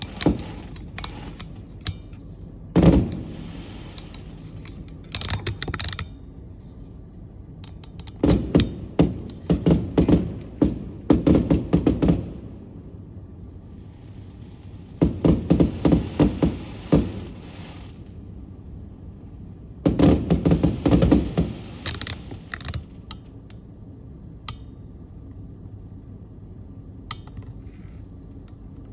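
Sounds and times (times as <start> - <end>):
low background rumble: 0.0 - 28.9
fireworks bangs and crackling: 14.0 - 18.0.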